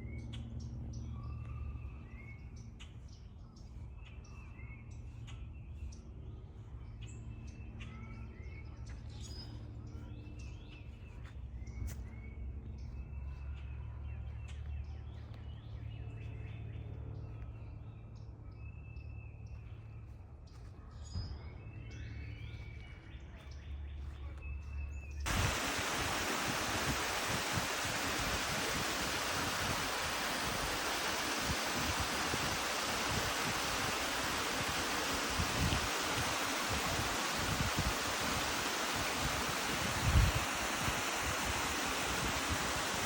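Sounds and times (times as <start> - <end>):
small birds chirping: 0.0 - 43.0
rushing water: 25.3 - 43.0.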